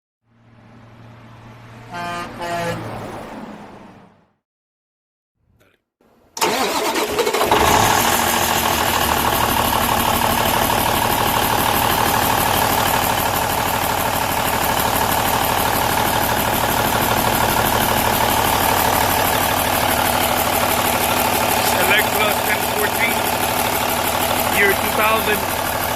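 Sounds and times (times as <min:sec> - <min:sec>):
diesel engine starting and idling: 0:06.4 - 0:25.9.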